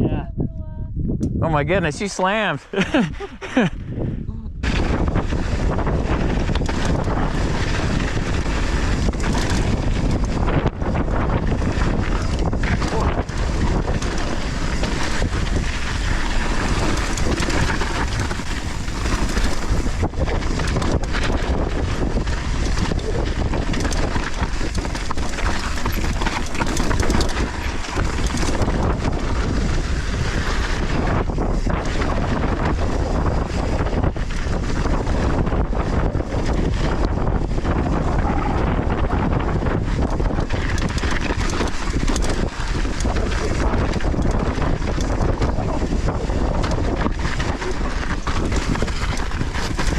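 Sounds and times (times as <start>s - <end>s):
wind buffeting microphone: 0.0s - 49.9s
tyres rumbling over loose soil: 5.3s - 31.0s, 37.8s - 49.9s.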